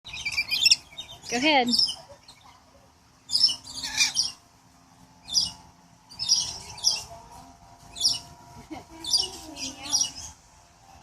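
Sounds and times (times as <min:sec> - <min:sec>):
lorikeets shrill calls: 0:00.1 - 0:02.5, 0:03.2 - 0:04.4, 0:05.2 - 0:07.1, 0:07.9 - 0:08.4, 0:09.0 - 0:10.4.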